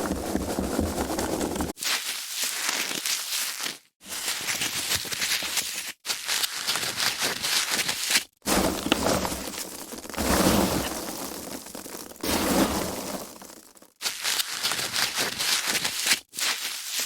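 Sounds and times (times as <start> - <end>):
foam packaging crackling: 4.4 - 17.0.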